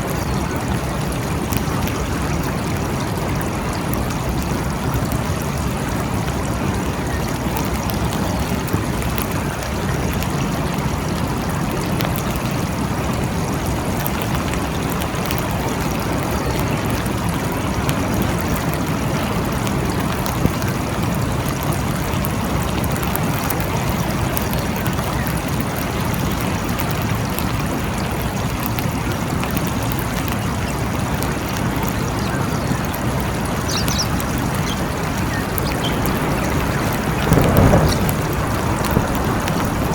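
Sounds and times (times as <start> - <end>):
faint water drips: 0.0 - 39.9
heavy rain hiss: 0.0 - 39.9.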